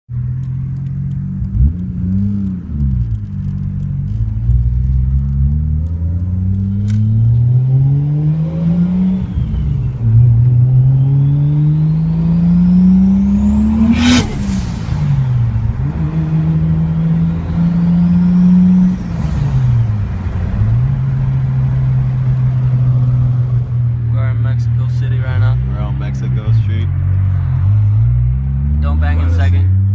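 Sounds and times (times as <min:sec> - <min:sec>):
car engine revving: 0:00.2 - 0:29.9.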